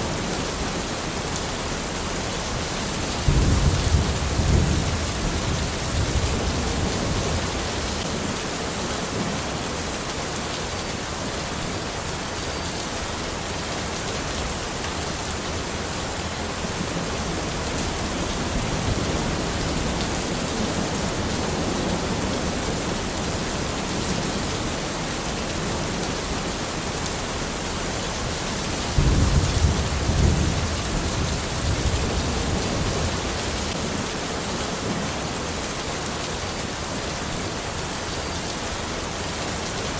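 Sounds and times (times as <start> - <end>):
rain falling in forest: 0.0 - 39.9
low rumble of thunder: 3.2 - 8.2, 28.8 - 34.0.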